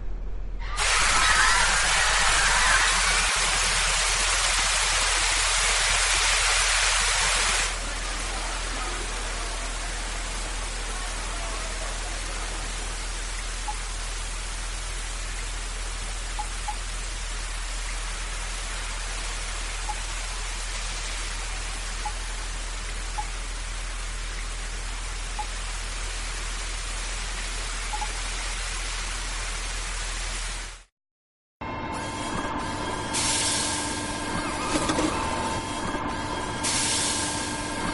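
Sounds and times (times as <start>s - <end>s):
falling rain hiss: 0.8s - 30.8s.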